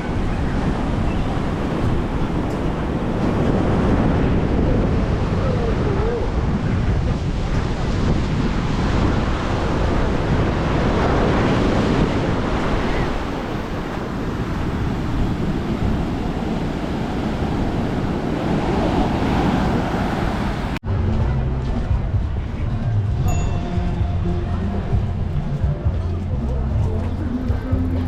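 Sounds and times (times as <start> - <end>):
sea waves washing onto beach: 0.0 - 20.8
wind buffeting microphone: 0.0 - 28.0.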